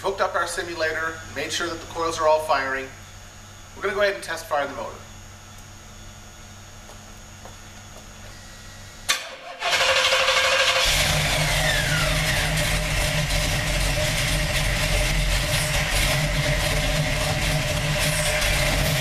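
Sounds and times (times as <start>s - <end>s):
engine starting and running: 9.1s - 19.0s.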